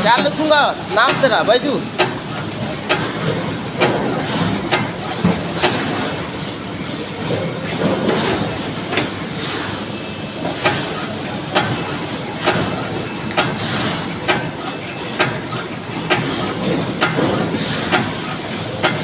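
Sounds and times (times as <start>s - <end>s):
sharp machine clack: 0.0s - 6.4s, 10.5s - 19.0s
steady mechanical clatter: 0.0s - 19.0s.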